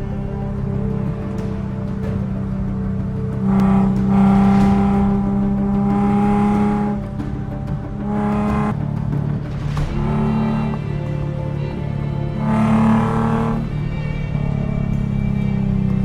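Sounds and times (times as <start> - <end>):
car engine at high revs: 0.0 - 8.8, 12.4 - 13.8
background music: 0.0 - 16.0.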